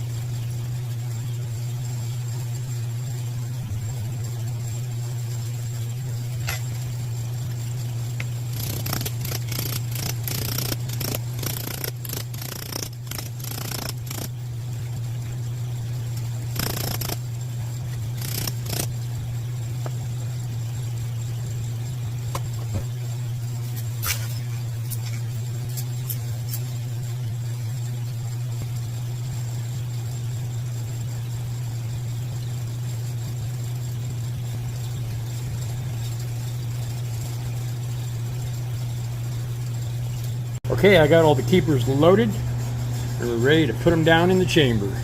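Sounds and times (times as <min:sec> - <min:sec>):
shop equipment hum: 0:00.0 - 0:45.0
small metal parts clicking: 0:08.2 - 0:14.3, 0:16.2 - 0:17.2, 0:18.0 - 0:18.9.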